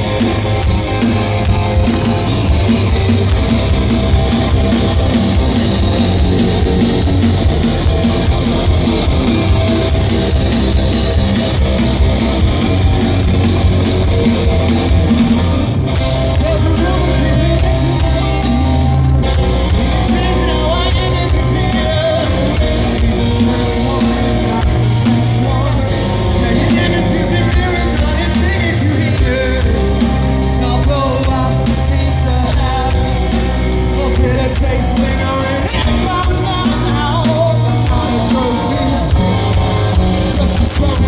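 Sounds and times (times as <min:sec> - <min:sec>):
live rock band playing: 0:00.0 - 0:41.0
person singing: 0:16.0 - 0:41.0.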